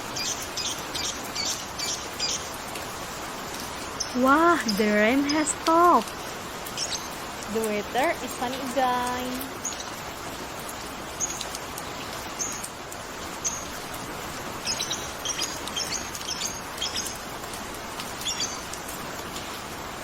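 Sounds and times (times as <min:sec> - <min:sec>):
small birds chirping: 0:00.0 - 0:02.8, 0:03.6 - 0:19.3.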